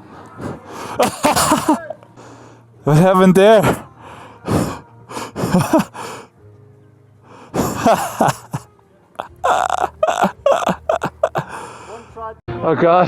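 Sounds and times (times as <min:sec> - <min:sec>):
man panting: 0:00.0 - 0:01.6, 0:03.4 - 0:06.3, 0:07.3 - 0:08.6, 0:09.2 - 0:12.2.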